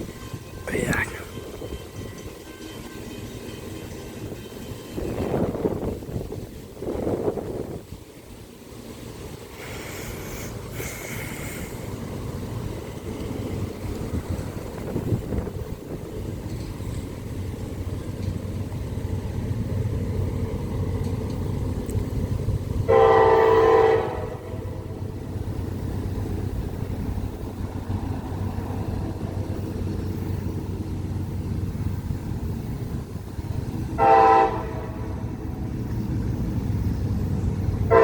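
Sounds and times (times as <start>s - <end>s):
train air horn: 0.0s - 5.4s, 22.9s - 25.0s, 34.0s - 35.3s
train low rumble: 0.0s - 38.0s.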